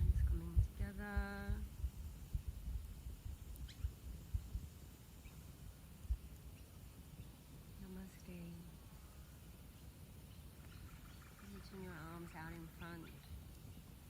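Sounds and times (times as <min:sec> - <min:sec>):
wind buffeting microphone: 0:00.0 - 0:14.0
faint high chirps: 0:03.5 - 0:04.5.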